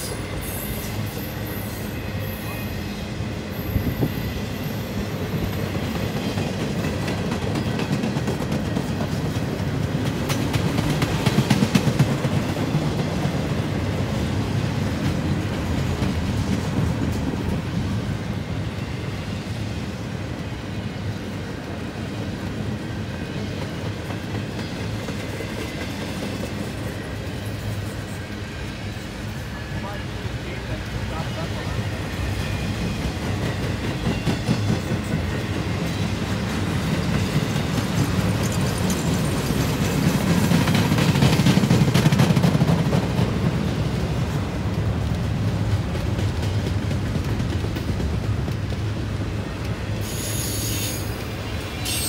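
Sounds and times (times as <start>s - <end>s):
train wheels clicking over rail joints: 4.9s - 18.1s, 21.0s - 29.3s, 30.8s - 52.0s
high wheel squeal: 50.0s - 52.0s.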